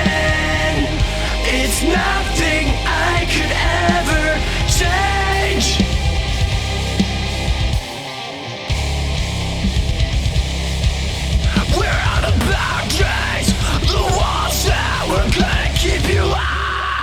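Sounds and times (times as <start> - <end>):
lead guitar with bending pitches: 0.0 - 11.4
heavy metal music: 0.0 - 17.0.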